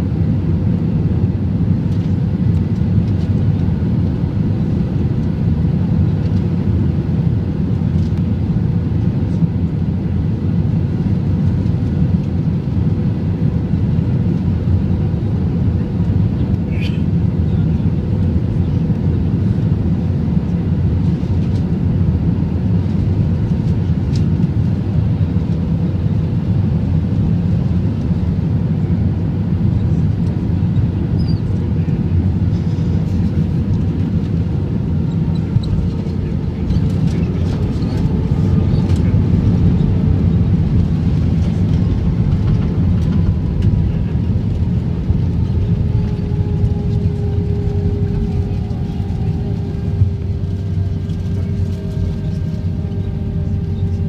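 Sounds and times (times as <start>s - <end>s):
jet engine and airflow roar: 0.0s - 54.0s
engine tone falling in pitch: 45.1s - 54.0s.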